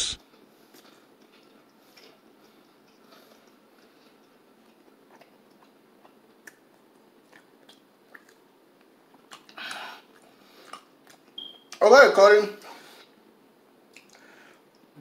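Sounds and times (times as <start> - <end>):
brief hiss: 0.0 - 0.2
close chewing: 0.3 - 8.5
wet mouth clicks: 5.2 - 8.4, 13.9 - 14.2.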